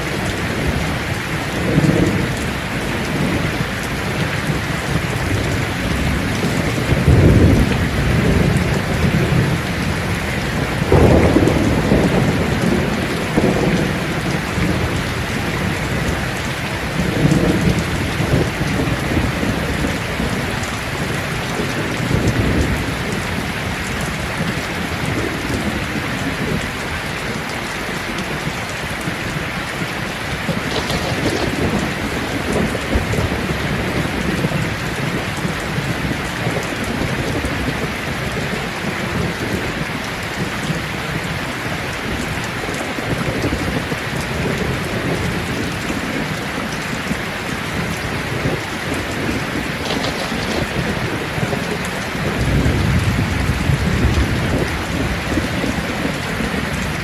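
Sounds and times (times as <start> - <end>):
rain falling on leaves: 0.0 - 57.0
low rolling rumble: 30.4 - 34.6, 49.6 - 57.0.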